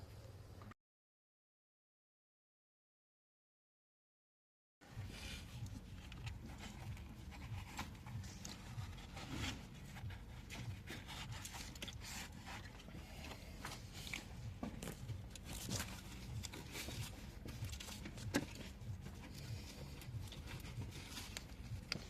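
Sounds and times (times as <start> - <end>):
rubbing and scraping: 4.9 - 22.0.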